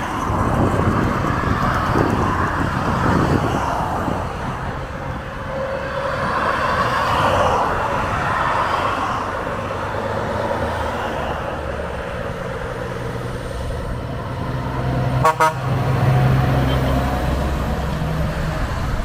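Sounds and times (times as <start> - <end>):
road and traffic noise: 0.0 - 19.0.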